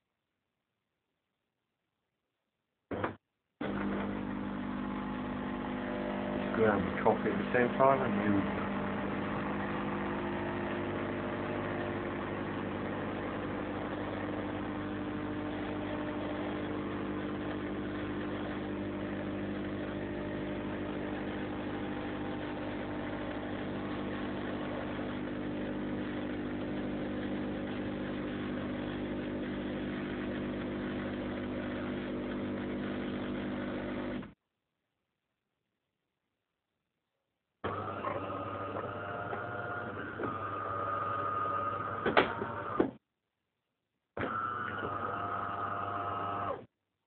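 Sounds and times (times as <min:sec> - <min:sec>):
coffee machine pump humming: 0:02.9 - 0:34.4, 0:37.6 - 0:42.9, 0:44.2 - 0:46.6.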